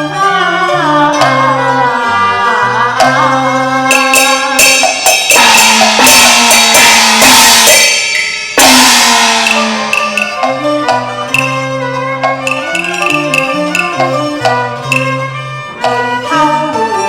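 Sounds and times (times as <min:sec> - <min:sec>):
melody instruments: 0:01.0 - 0:17.0
drums: 0:03.0 - 0:16.2
cymbal crashes: 0:03.9 - 0:11.7.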